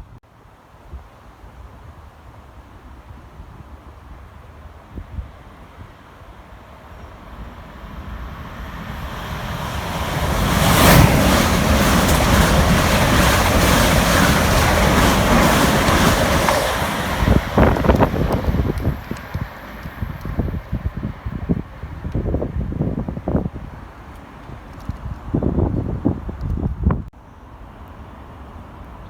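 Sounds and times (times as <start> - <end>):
train passing: 3.9 - 24.5
wind buffeting microphone: 4.9 - 27.2.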